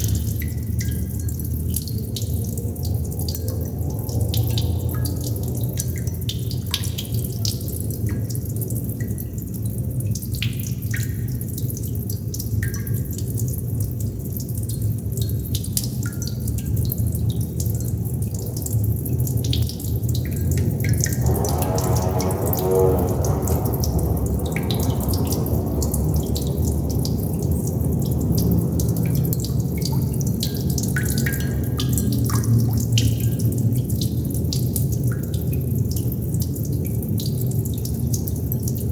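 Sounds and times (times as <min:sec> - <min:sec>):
steady low rumble: 0:00.0 - 0:06.9, 0:19.2 - 0:34.4
water droplets dripping: 0:00.0 - 0:38.9.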